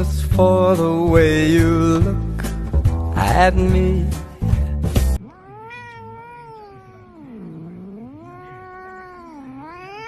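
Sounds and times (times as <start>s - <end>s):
cat yowling: 5.2s - 10.0s.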